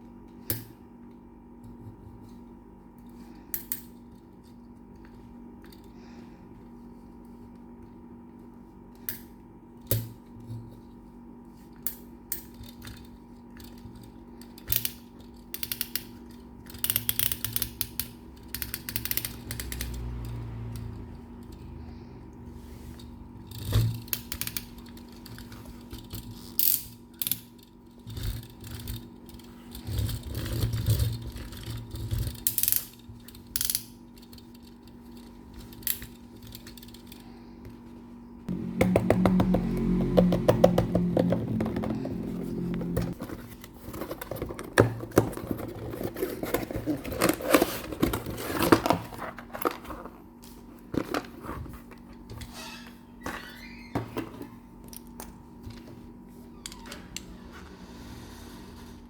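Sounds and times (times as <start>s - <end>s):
ratcheting of toy parts: 12.3s - 21.8s, 22.9s - 37.2s
toy trucks clicking and clattering: 12.7s - 21.8s.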